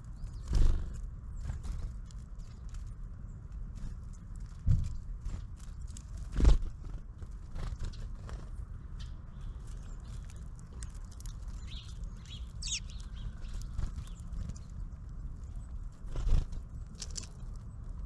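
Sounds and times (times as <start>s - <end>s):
steady low rumble: 0.0s - 18.0s
short high bird chirps: 11.7s - 13.3s.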